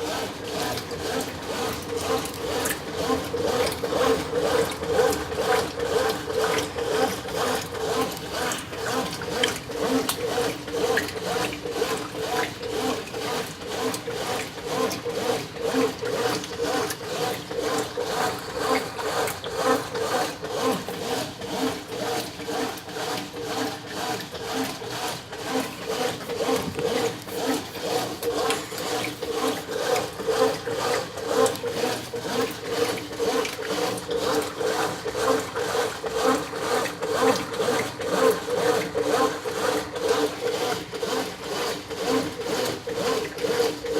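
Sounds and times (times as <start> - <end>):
washing machine motor hum: 0.0 - 43.9
washing machine rhythmic swish: 0.0 - 43.9.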